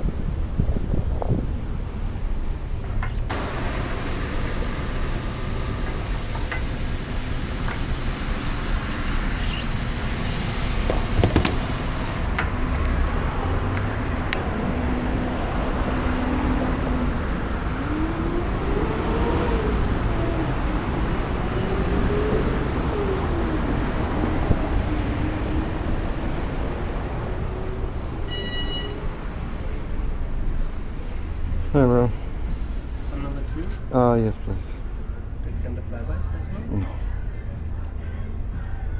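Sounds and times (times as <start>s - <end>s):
engine and traffic rumble: 0.0s - 38.9s
engine rising and falling: 3.0s - 28.3s.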